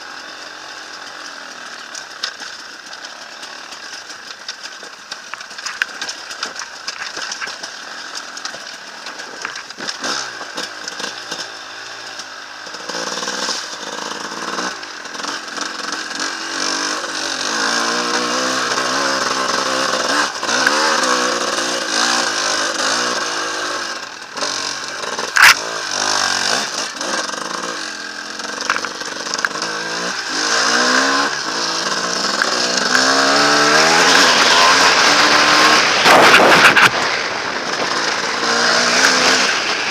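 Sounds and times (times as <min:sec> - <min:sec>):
motorcycle engine revving: 0:00.0 - 0:39.9
sharp crack: 0:25.2 - 0:27.8, 0:28.5 - 0:39.9.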